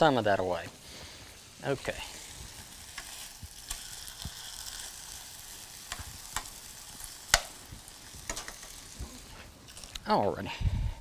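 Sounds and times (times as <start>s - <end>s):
chicken sizzling in a skillet: 0.0s - 10.5s
utensil clicking against pan: 8.3s - 8.8s.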